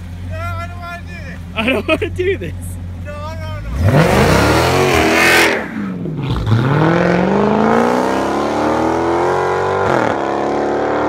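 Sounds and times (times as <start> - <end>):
car engine accelerating hard: 3.7 - 11.0.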